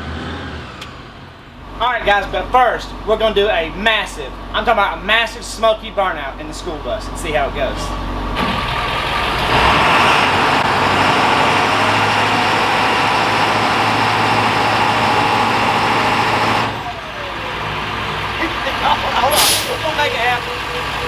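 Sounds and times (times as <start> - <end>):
bus engine at full throttle: 0.0 - 3.0, 7.7 - 21.0.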